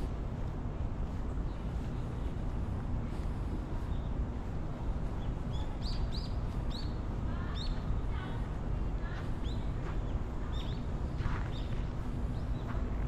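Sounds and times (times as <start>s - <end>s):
small birds chirping: 3.8s - 8.4s, 9.1s - 13.0s.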